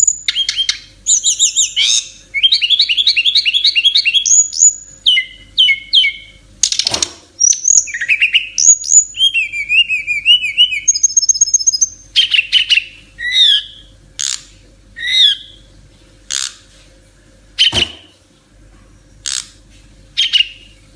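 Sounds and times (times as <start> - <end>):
songbird singing whistles and trills: 0.0 - 14.4, 15.0 - 15.7, 20.2 - 20.8.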